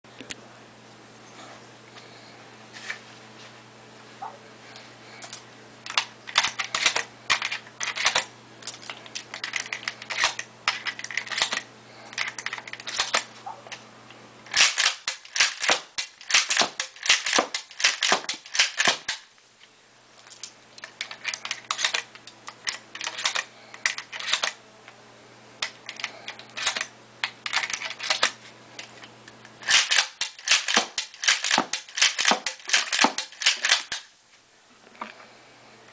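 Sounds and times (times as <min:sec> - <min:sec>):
low steady hum: 0:00.1 - 0:35.9
toy shotgun parts clicking: 0:05.2 - 0:13.3, 0:14.5 - 0:19.2, 0:20.3 - 0:24.6, 0:25.6 - 0:29.0, 0:29.6 - 0:34.1.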